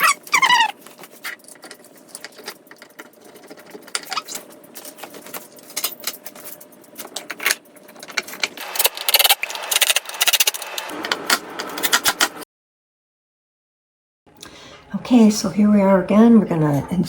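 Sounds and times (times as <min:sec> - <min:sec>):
metal hardware clicking and rattling: 0:01.0 - 0:10.6.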